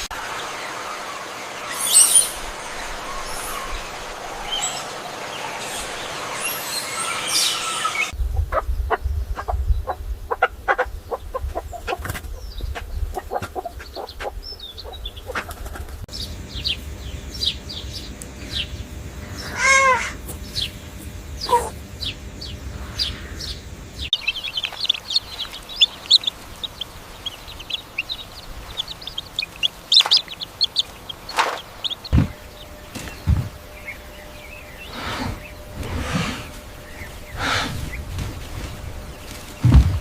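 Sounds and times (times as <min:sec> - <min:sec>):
bird calls: 0:00.0 - 0:40.0
high bird chirps: 0:00.9 - 0:08.2, 0:23.0 - 0:35.7
low rumble: 0:20.4 - 0:40.0
steady hiss: 0:22.6 - 0:40.0
sharp clicks and flutters: 0:24.2 - 0:32.3.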